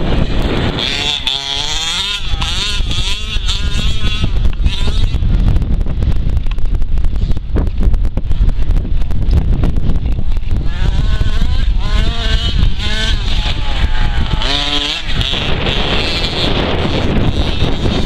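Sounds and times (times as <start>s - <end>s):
model car engine revving: 0.0s - 5.2s, 10.6s - 18.0s
wind noise on microphone: 0.0s - 18.0s.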